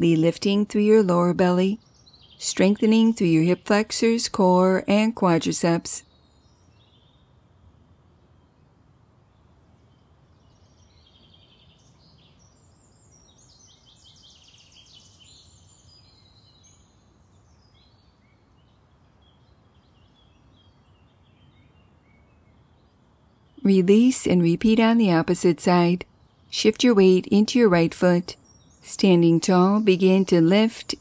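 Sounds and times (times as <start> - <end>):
small birds chirping and trilling: 0.3 - 4.7, 6.0 - 8.6, 9.2 - 23.6, 27.8 - 31.0.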